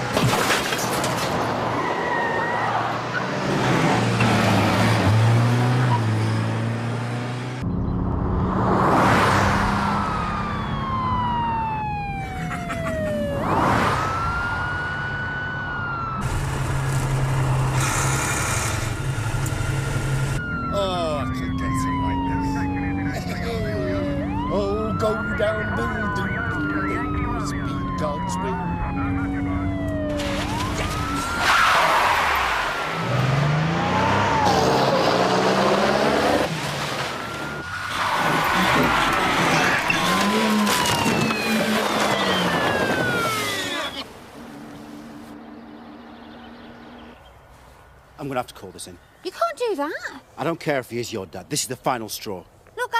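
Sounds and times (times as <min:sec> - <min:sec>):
tyres squealing and skidding: 0:01.2 - 0:06.6, 0:25.8 - 0:45.0
police siren wailing: 0:01.6 - 0:03.2, 0:09.5 - 0:17.7, 0:18.9 - 0:45.3
car engine revving: 0:03.0 - 0:11.4, 0:15.8 - 0:47.2.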